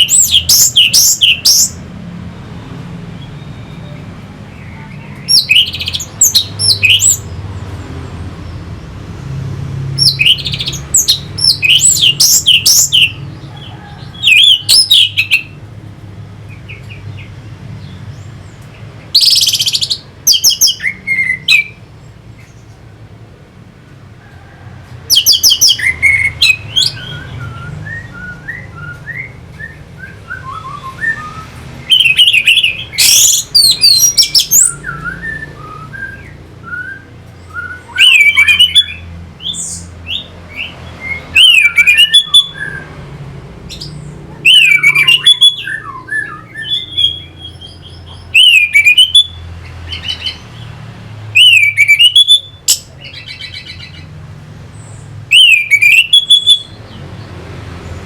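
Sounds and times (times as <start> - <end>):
thrush singing whistled phrases: 0.0 - 1.8, 3.2 - 7.3, 10.0 - 13.3, 14.0 - 15.6, 19.2 - 21.8, 25.1 - 43.0, 43.7 - 50.4, 51.3 - 54.1, 55.3 - 57.0
soft bird twittering: 3.2 - 7.8, 10.0 - 15.6, 16.6 - 21.8, 43.7 - 57.0.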